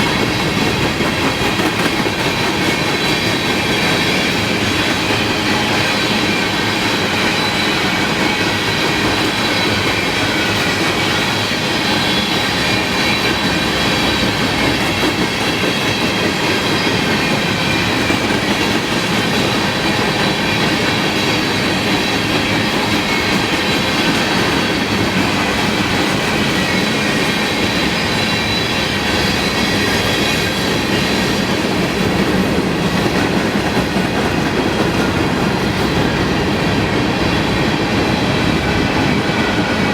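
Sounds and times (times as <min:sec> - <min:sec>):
freight train rolling past: 0:00.0 - 0:39.9
wheels clattering on rails: 0:00.0 - 0:39.9
high-pitched wheel squeal: 0:26.5 - 0:31.7.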